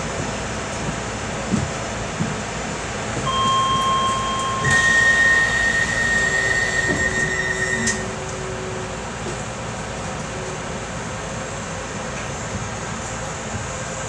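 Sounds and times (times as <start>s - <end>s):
train equipment humming: 3.2s - 12.4s
high electronic tones: 3.3s - 8.1s.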